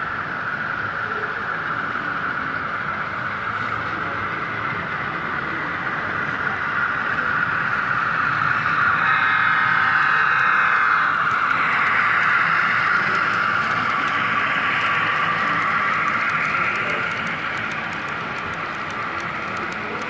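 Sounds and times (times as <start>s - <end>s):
model train wheels on rails: 0.0s - 20.0s
motor hum: 10.2s - 20.0s.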